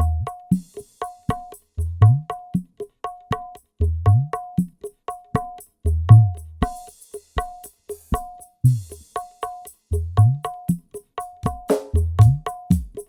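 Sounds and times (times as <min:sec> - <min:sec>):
cymbal: 0:00.0 - 0:01.8, 0:06.7 - 0:10.0.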